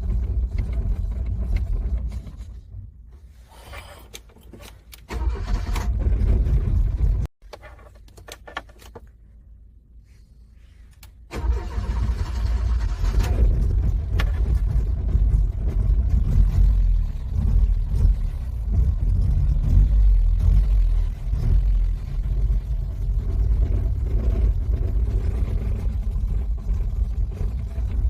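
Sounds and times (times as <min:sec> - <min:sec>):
car engine cranking: 0:04.0 - 0:07.3, 0:11.3 - 0:28.0.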